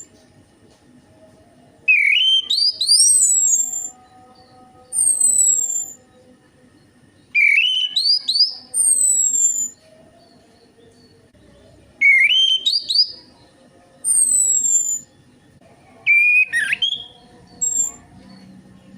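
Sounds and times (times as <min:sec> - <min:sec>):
thrush whistled song: 0:01.9 - 0:04.3, 0:04.9 - 0:06.1, 0:07.3 - 0:09.8, 0:12.0 - 0:13.3, 0:14.0 - 0:15.2, 0:16.1 - 0:18.0.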